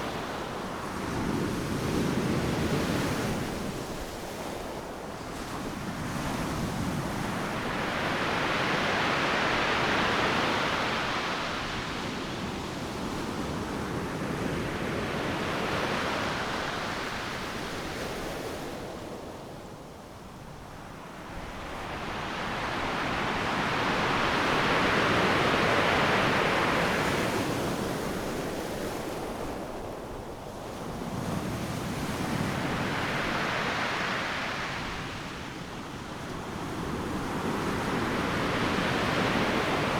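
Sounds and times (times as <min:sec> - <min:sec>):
ocean waves crashing on beach: 0:21.0 - 0:39.9.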